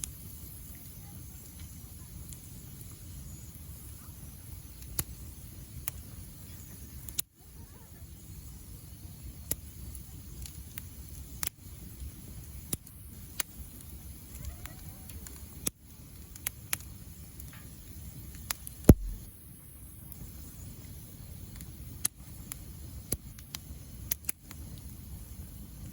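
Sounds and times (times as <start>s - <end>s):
fire crackles and pops: 0.0s - 25.9s
wood fire rumbling: 18.9s - 19.4s.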